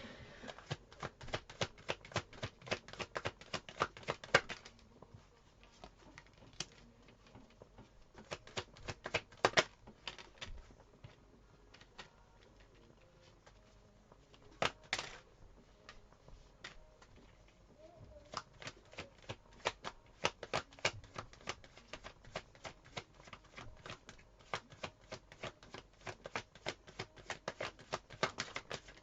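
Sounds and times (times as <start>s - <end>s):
cards being shuffled: 0.4s - 4.9s, 5.5s - 13.7s, 14.3s - 15.2s, 18.2s - 29.0s.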